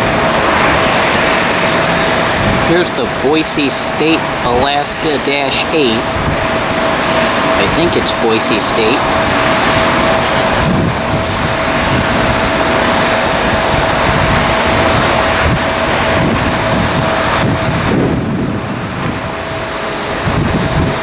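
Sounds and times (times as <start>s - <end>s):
aircraft noise: 0.0s - 21.0s
constant engine whine: 0.0s - 21.0s
wind buffeting microphone: 0.0s - 21.0s.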